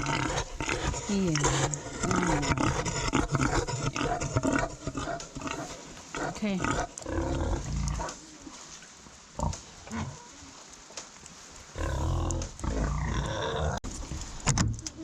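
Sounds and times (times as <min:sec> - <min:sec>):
pig grunting: 0:00.0 - 0:08.2, 0:11.8 - 0:13.8.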